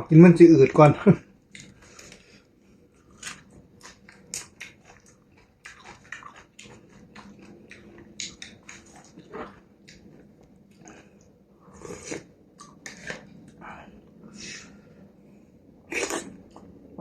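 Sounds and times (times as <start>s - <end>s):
person chewing and biting: 3.0s - 11.0s, 11.7s - 13.3s.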